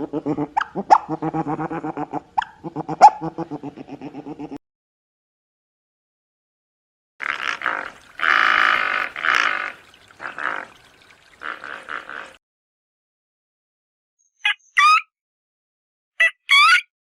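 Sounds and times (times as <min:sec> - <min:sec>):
high squeaky animal calls: 0:14.4 - 0:15.1, 0:16.2 - 0:16.9.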